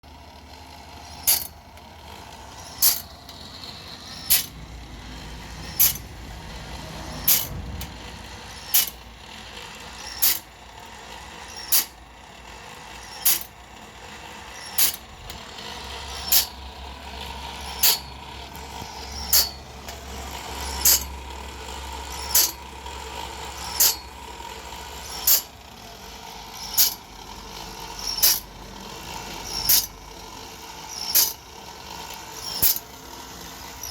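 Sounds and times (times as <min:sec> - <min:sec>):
motor hum: 0:00.0 - 0:33.9
blade sharpener clicking: 0:01.0 - 0:01.9, 0:02.6 - 0:03.4, 0:04.1 - 0:04.6, 0:05.6 - 0:06.2, 0:07.2 - 0:07.9, 0:08.6 - 0:09.0, 0:10.0 - 0:12.0, 0:13.0 - 0:13.5, 0:14.5 - 0:16.6, 0:17.6 - 0:19.6, 0:20.6 - 0:21.1, 0:22.1 - 0:22.6, 0:23.6 - 0:24.0, 0:25.0 - 0:25.5, 0:26.6 - 0:27.0, 0:28.0 - 0:28.5, 0:29.4 - 0:30.0, 0:30.9 - 0:31.4, 0:32.1 - 0:32.9.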